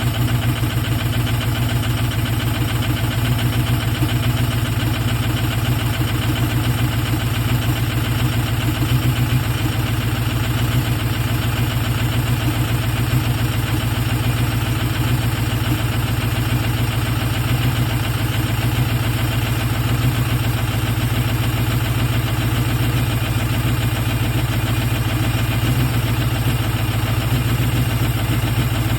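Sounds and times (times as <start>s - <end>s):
diesel engine idling: 0.0s - 28.9s.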